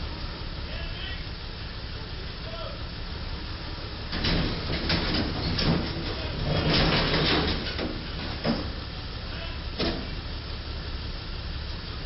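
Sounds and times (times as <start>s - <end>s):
traffic rumble: 0.0s - 12.0s
scraping clattering bursts: 4.1s - 8.9s.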